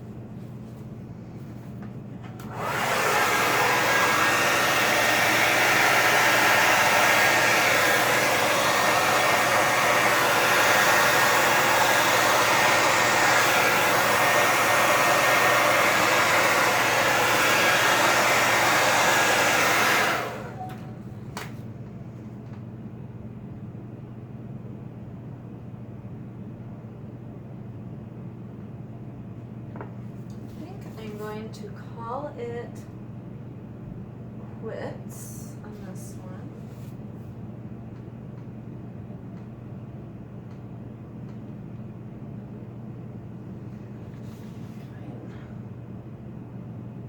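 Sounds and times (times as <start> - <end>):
hair dryer blowing: 2.3 - 21.0.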